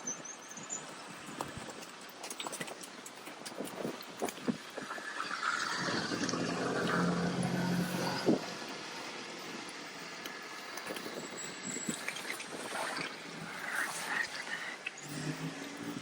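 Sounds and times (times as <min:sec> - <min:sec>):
rain: 0:01.0 - 0:15.7
car passing on wet road: 0:05.0 - 0:10.5.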